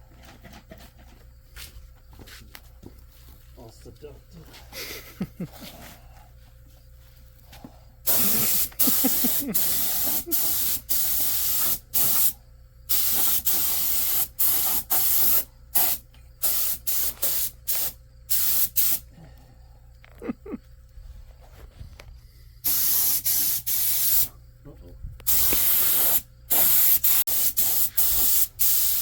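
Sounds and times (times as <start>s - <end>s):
spray gun hissing bursts: 8.1s - 19.0s, 22.6s - 24.3s, 25.3s - 29.0s.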